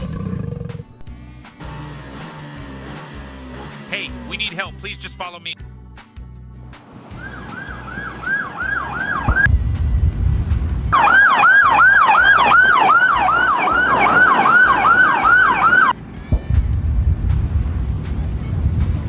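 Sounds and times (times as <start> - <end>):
police siren yelping: 7.1 - 9.5, 10.9 - 16.0.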